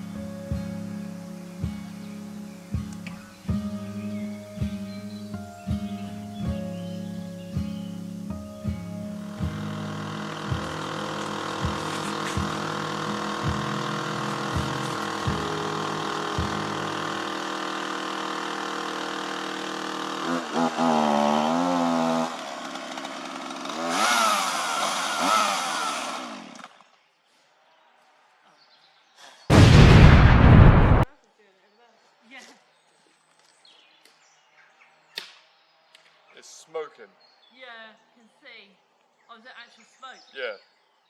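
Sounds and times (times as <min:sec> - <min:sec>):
plucked guitar music: 0:00.0 - 0:17.4
chainsaw engine revving: 0:09.2 - 0:26.9.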